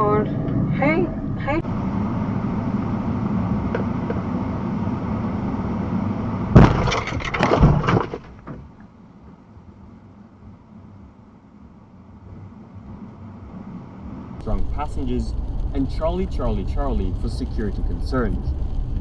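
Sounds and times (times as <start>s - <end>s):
road noise inside moving car: 0.0s - 19.0s
vehicle collision crash: 6.5s - 8.8s.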